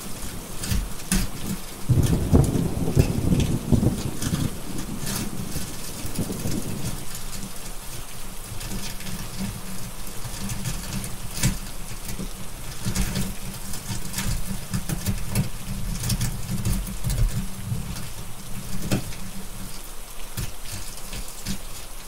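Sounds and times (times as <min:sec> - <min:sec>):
steady rain falling: 0:00.0 - 0:22.0
wood fire crackling: 0:00.0 - 0:22.0
thunder rolling: 0:01.8 - 0:07.3.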